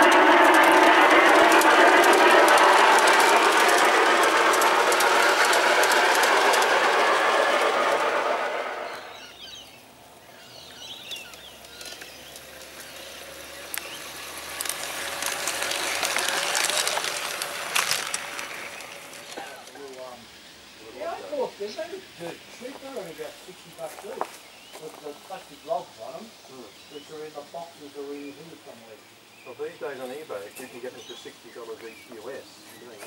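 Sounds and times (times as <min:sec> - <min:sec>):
model train running on track: 0:00.0 - 0:09.6, 0:11.2 - 0:20.2
wheels clicking on rails: 0:00.0 - 0:09.6, 0:10.7 - 0:20.1.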